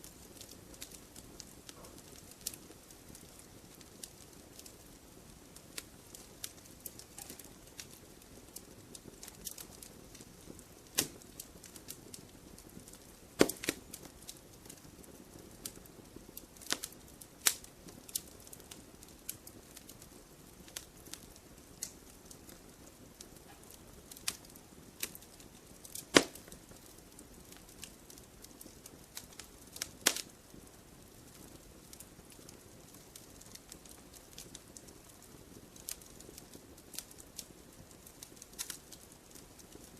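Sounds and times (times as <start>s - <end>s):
campfire crackling and popping: 0.0s - 39.9s
soft steady fire hiss: 0.0s - 39.9s.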